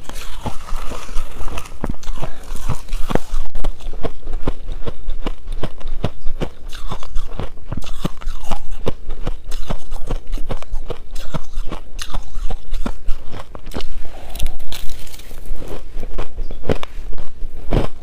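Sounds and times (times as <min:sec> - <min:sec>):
shaved ice crunching: 0:00.0 - 0:03.4, 0:13.8 - 0:15.8.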